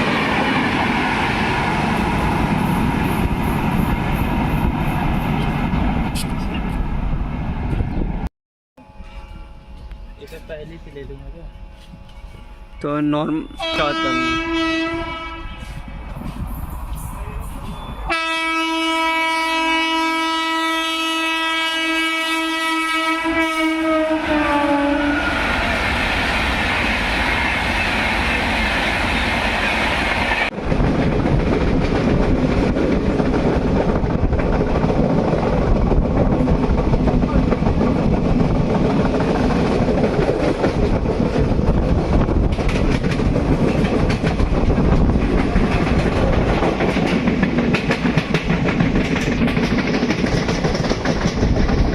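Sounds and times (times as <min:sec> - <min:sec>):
fast train passing: 0:00.0 - 0:51.9
train horn blast: 0:13.4 - 0:15.9, 0:18.1 - 0:25.8.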